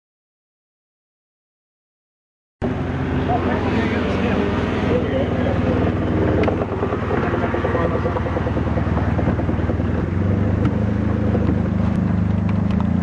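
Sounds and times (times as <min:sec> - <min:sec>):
boat engine running: 0:02.6 - 0:13.0.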